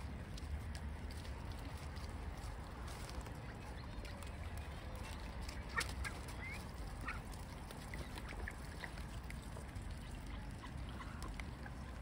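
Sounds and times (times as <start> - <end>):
birds calling: 3.2 - 9.0.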